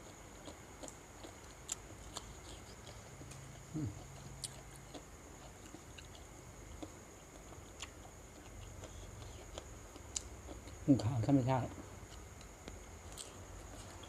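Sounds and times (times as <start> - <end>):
chewing and small clicks: 0.0 - 11.0, 12.0 - 14.0.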